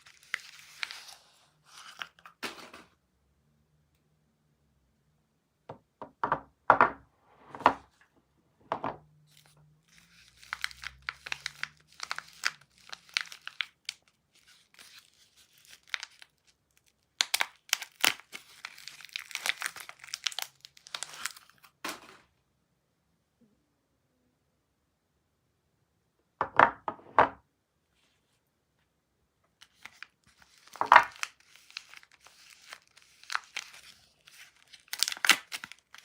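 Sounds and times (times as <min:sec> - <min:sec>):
packaging being torn: 0:00.0 - 0:02.6, 0:09.3 - 0:21.8, 0:29.6 - 0:36.0
packaging crinkling: 0:00.0 - 0:02.8, 0:09.3 - 0:21.8, 0:29.6 - 0:36.0.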